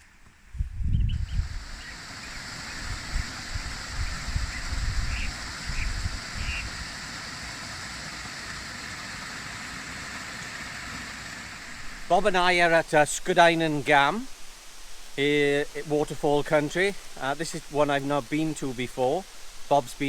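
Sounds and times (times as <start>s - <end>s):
wind rumble on microphone: 0.4s - 7.0s
waterfall rushing: 1.4s - 20.0s.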